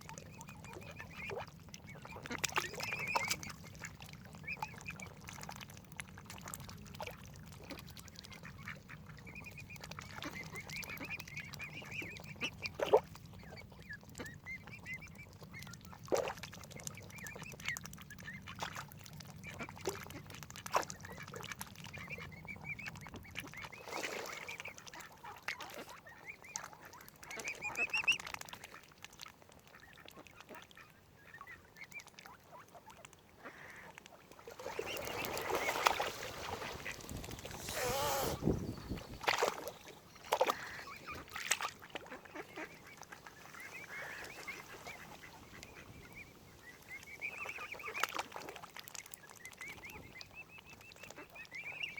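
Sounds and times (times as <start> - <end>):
waterfowl calling: 34.7 - 48.2.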